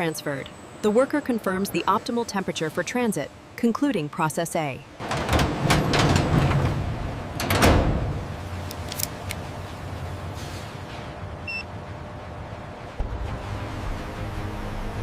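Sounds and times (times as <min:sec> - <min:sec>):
machinery clanks: 0:05.0 - 0:08.6.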